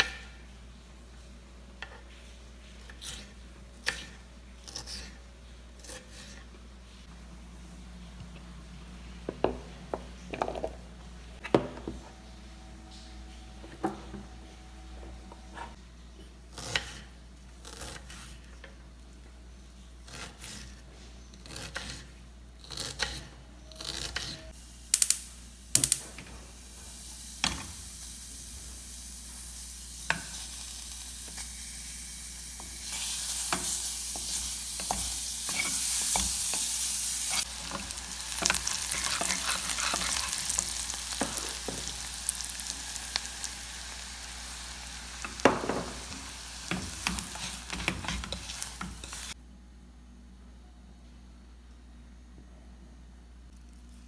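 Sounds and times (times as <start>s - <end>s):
meat sizzling: 24.6s - 49.4s.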